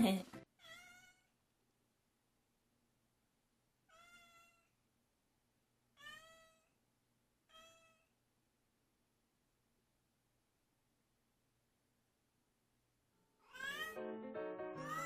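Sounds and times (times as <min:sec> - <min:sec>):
cat meowing: 0:00.6 - 0:01.3, 0:03.9 - 0:04.8, 0:06.0 - 0:06.8, 0:07.5 - 0:08.1, 0:13.4 - 0:14.0, 0:14.8 - 0:15.0.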